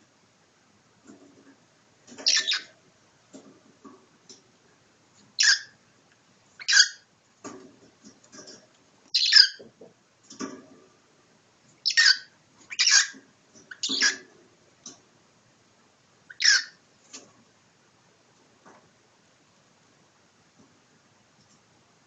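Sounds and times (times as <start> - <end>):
cockatiel harsh calls: 5.4 - 5.7, 6.6 - 7.0, 9.1 - 9.6, 11.8 - 14.3, 16.3 - 16.8.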